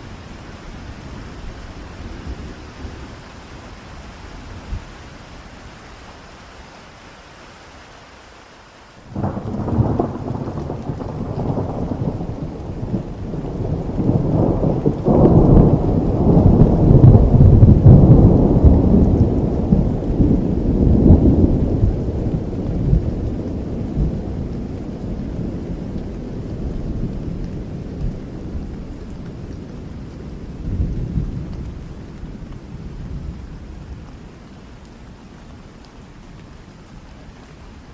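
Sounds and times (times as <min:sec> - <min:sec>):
faint steady rain: 0:00.0 - 0:37.9
thunder rumbling: 0:09.1 - 0:34.4.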